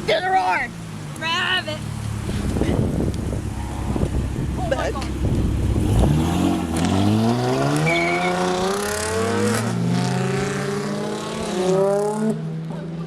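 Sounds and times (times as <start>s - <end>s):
car engine accelerating: 0.8s - 12.8s.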